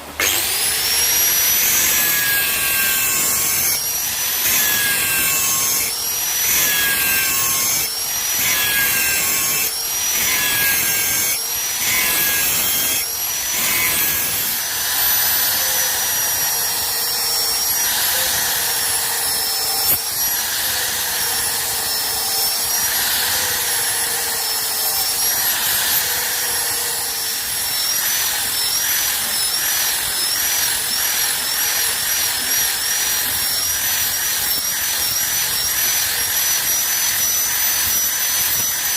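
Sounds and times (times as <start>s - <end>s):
electric grinder grinding steel: 0.0s - 38.9s.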